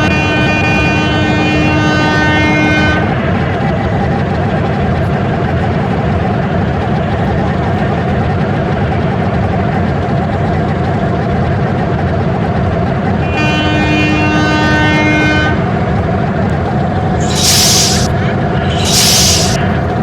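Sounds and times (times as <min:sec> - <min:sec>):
train horn blast: 0:00.1 - 0:03.2, 0:13.2 - 0:15.7.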